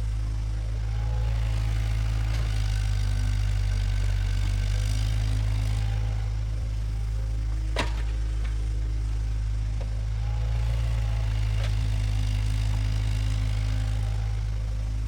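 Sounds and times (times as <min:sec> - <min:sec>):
bulldozer diesel engine running: 0:00.0 - 0:15.0
faint clanks: 0:07.5 - 0:08.8.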